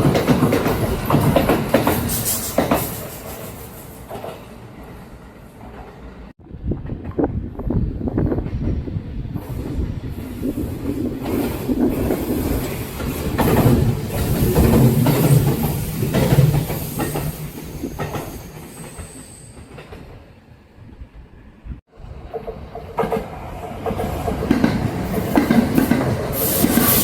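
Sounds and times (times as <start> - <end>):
train wheels clattering over rails: 0.0 - 4.5, 8.4 - 20.2, 22.2 - 27.0.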